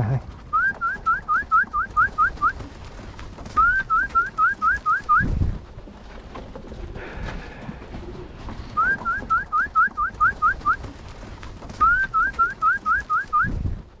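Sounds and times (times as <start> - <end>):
wind rumble: 0.0 - 12.6, 13.3 - 14.0
bird whistling rising notes: 0.5 - 2.6, 8.7 - 10.8.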